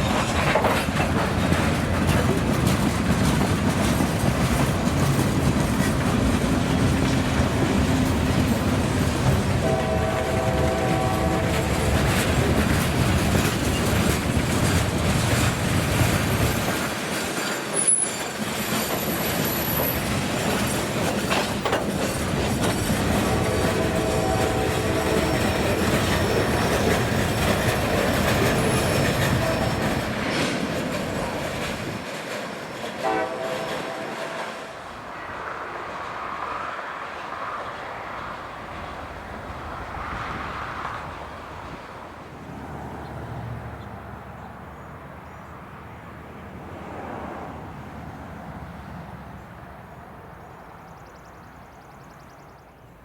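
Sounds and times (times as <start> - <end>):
train wheels clattering over rails: 0.0 - 34.8
locomotive horn blasts: 9.6 - 12.2, 23.1 - 26.5, 29.2 - 30.0, 33.0 - 35.3.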